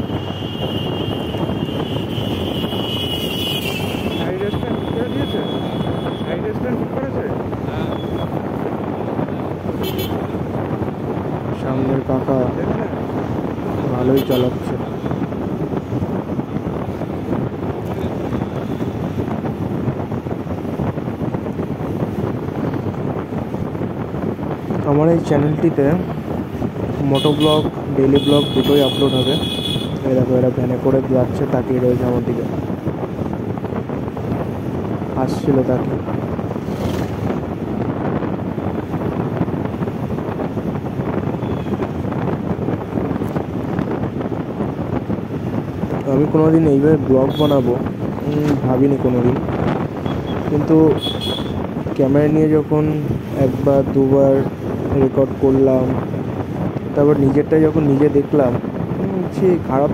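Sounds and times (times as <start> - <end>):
road noise: 0.0 - 59.9
wind buffeting microphone: 0.0 - 59.9
motorcycle running: 35.6 - 45.8.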